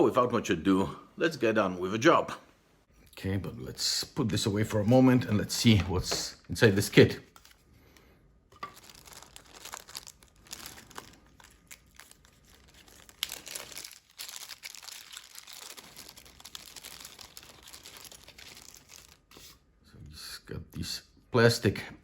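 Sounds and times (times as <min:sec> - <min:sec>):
plastic packaging crinkling: 0:08.5 - 0:19.6.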